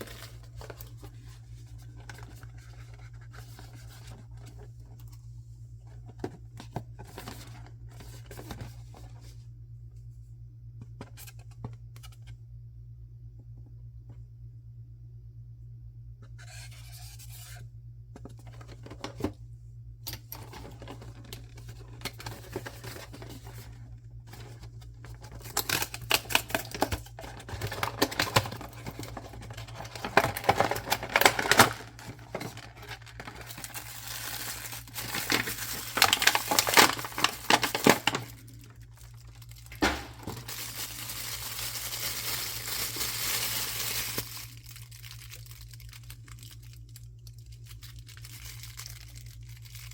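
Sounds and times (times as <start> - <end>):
packaging crinkling and tearing: 0.0 - 5.1, 20.4 - 49.9
low steady hum: 0.0 - 49.9.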